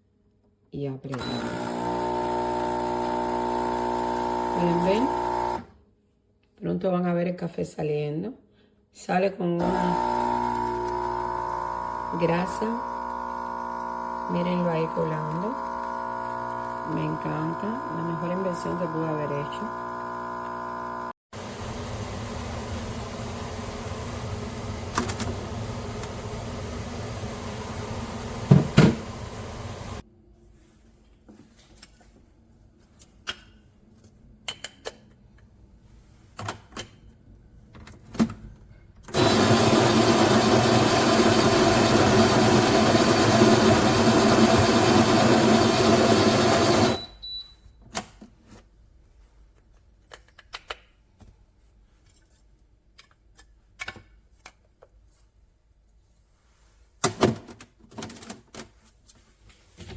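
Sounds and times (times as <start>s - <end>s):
espresso machine grinding: 1.2s - 5.7s, 9.6s - 30.0s, 39.2s - 47.0s.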